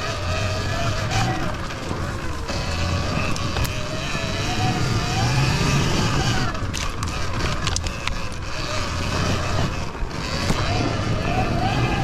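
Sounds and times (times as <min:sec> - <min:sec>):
electric motor whine: 0:00.0 - 0:12.0
rumble and tyre noise: 0:00.0 - 0:12.0
sharp ticks and knocks: 0:06.6 - 0:08.5.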